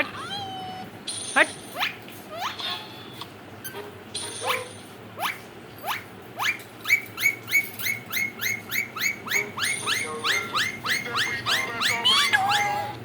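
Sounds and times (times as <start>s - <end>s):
parakeet rising calls: 4.4s - 13.0s.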